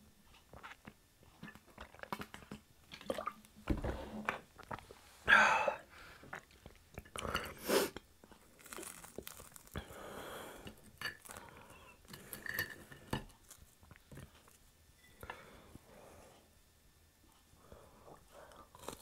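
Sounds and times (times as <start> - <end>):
wet chewing and crunching: 0.3 - 3.5, 6.2 - 10.0, 10.6 - 12.4, 18.5 - 19.0.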